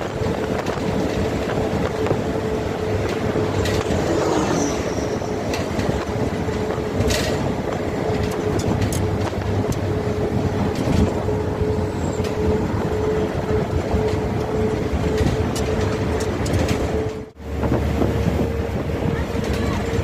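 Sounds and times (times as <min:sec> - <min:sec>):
moving vehicle rumble: 0:00.0 - 0:20.0.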